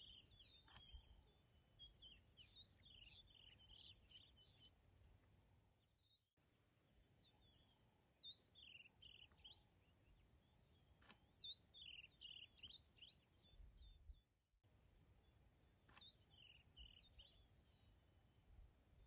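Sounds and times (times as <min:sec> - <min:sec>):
songbird song: 0:00.0 - 0:19.0
sharp click: 0:15.9 - 0:16.2.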